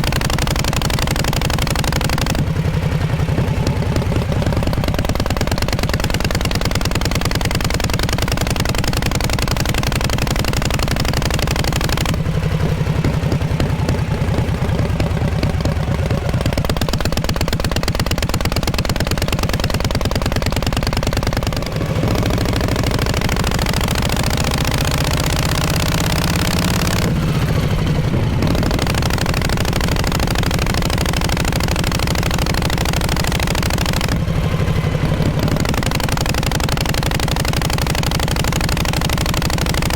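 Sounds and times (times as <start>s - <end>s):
motorcycle exhaust running: 0.0s - 39.9s.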